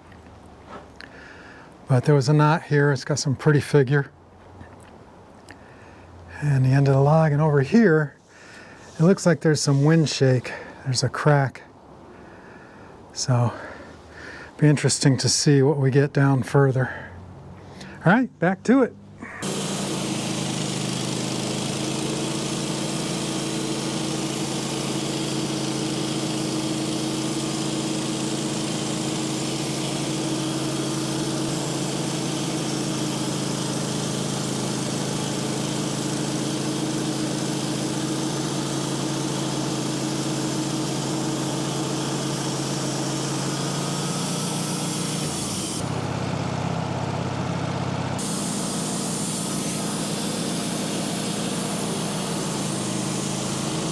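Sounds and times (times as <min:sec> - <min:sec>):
sawmill engine droning: 0:19.2 - 0:53.9
hiss: 0:48.2 - 0:53.9.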